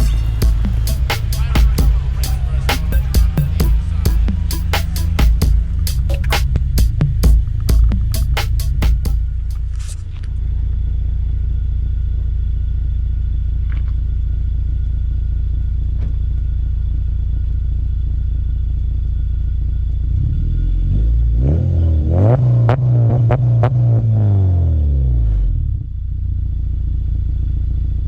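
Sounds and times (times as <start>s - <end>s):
car engine droning and revving: 0.0s - 28.0s.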